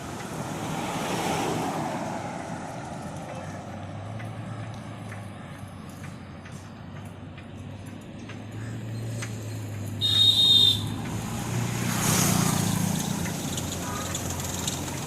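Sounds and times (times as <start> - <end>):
vehicle passing close: 0.0 - 5.3, 8.4 - 15.0
street traffic: 0.0 - 15.0.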